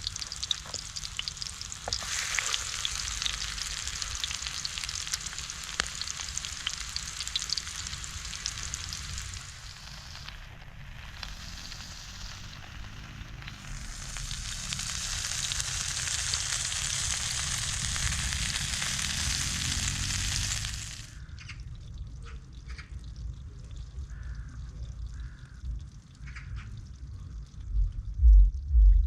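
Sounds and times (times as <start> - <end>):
food sizzling in hot oil: 0.0 - 21.3
low rumble: 26.8 - 29.0.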